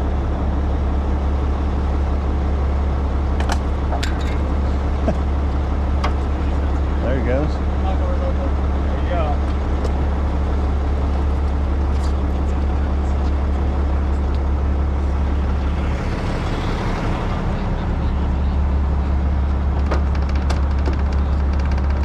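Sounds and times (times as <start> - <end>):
diesel engine droning: 0.0 - 22.0.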